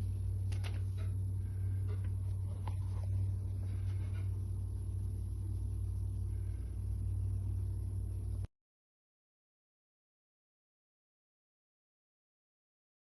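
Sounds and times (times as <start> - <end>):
low rumbling hum: 0.0 - 8.5.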